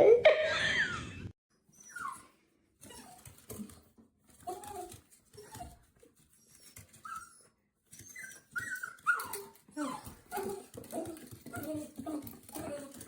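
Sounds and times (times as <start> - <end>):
pet animal whining: 4.4 - 13.0.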